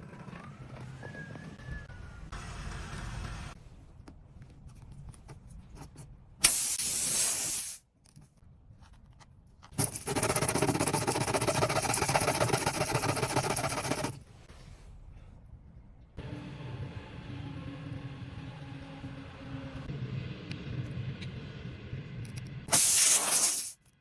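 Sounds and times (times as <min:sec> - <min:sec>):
air hissing from tire: 0:06.4 - 0:07.8, 0:22.7 - 0:23.8.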